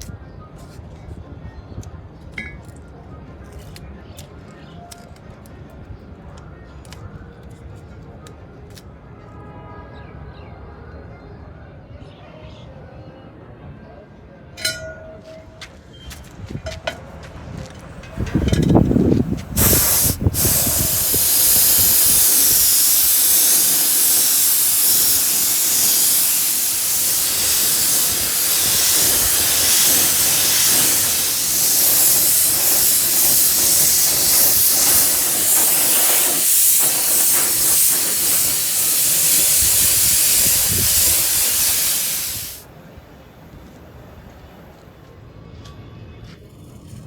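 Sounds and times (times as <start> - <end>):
paint spray hiss: 19.4 - 42.7.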